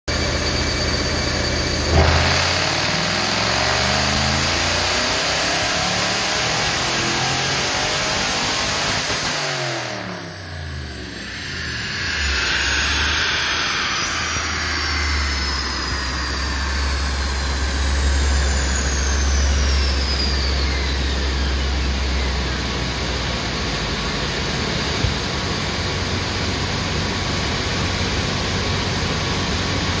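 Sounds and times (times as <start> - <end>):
high whine falling in pitch: 0.1 - 30.0
engine revving: 1.6 - 23.6
low rumble: 9.8 - 30.0.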